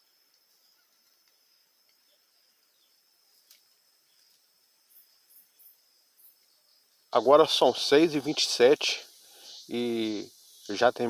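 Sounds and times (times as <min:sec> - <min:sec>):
cricket trill: 0:00.0 - 0:11.0
very high chirps: 0:07.2 - 0:11.0.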